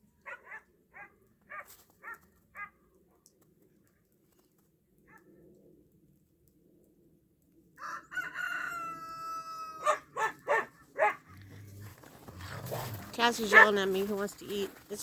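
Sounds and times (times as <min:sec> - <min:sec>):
rooster crowing: 0:07.8 - 0:10.6.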